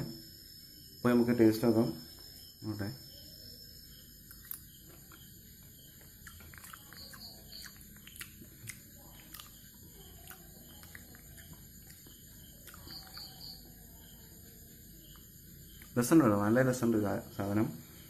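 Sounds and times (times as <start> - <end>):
mouth chewing clicks and smacks: 4.3 - 5.3, 5.9 - 13.5, 15.1 - 16.0.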